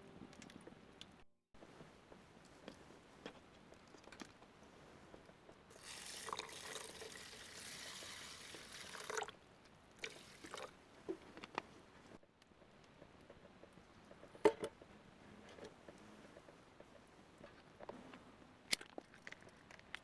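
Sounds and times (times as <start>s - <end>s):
liquid pouring: 5.7s - 9.4s, 10.0s - 10.7s.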